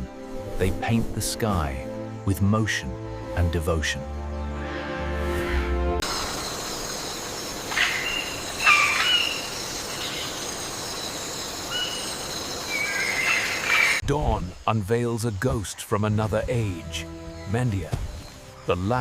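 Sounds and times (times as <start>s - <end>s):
background music: 0.0s - 6.4s, 14.9s - 19.0s
high insect drone: 6.0s - 15.6s.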